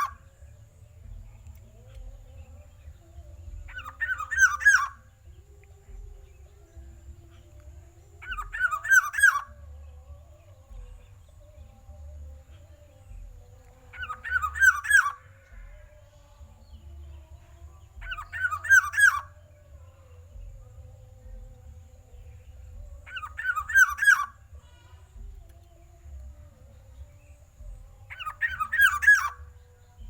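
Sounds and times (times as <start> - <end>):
bird whistled calls: 0.0 - 0.4, 3.6 - 5.2, 8.2 - 9.6, 14.0 - 15.8, 18.0 - 19.5, 23.0 - 24.6, 27.1 - 29.6.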